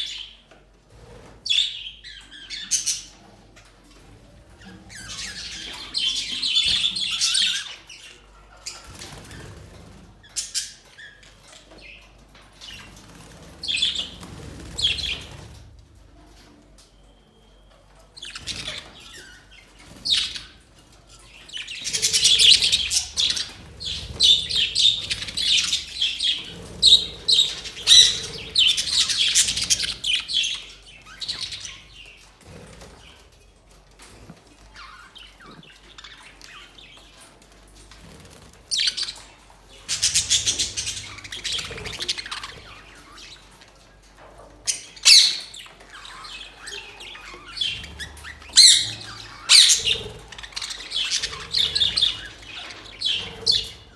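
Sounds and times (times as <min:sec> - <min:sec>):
budgerigars chirping: 0:04.6 - 0:09.6, 0:12.6 - 0:15.4, 0:18.2 - 0:33.2, 0:38.7 - 0:43.6, 0:44.7 - 0:53.9.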